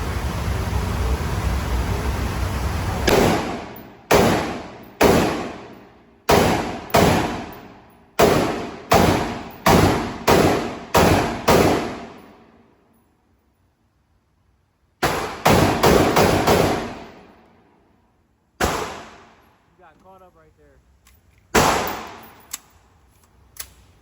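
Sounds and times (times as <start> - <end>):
steady hiss: 0.0 - 5.0
gunshots with echo: 3.0 - 12.3, 15.0 - 17.3, 18.6 - 19.4, 21.6 - 22.4.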